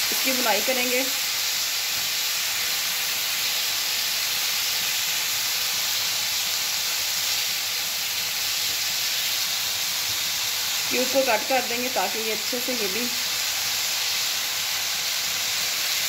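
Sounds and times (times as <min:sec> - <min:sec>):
chicken sizzling in a pan: 0:00.0 - 0:16.0.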